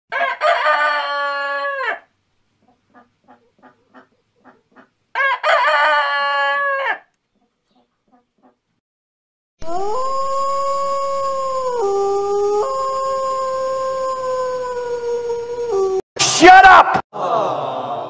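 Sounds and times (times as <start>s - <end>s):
rooster crowing: 0.1s - 2.1s, 5.1s - 7.1s
chicken clucking: 2.6s - 5.4s, 7.3s - 8.6s.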